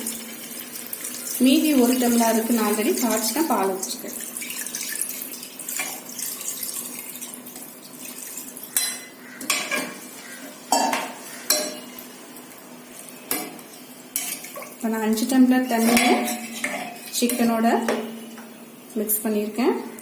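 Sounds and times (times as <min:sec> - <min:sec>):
spoon scraping and clinking pot: 0:15.8 - 0:17.5.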